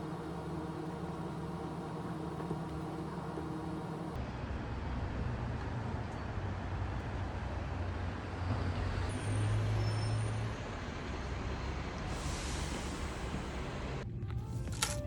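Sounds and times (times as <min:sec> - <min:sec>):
motor vehicle running: 0:00.0 - 0:04.2
road noise: 0:00.0 - 0:04.2.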